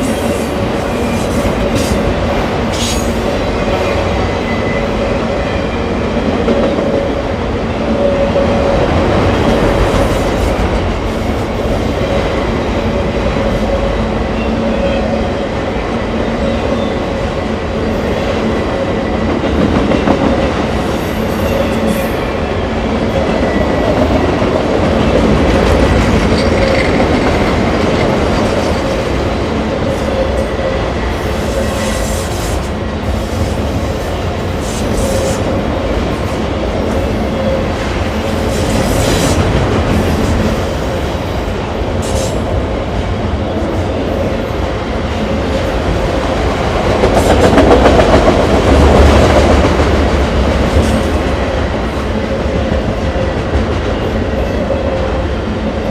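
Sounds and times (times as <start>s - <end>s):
train wheels rumbling on rail: 0.0s - 55.9s
train cars clattering: 18.4s - 55.9s.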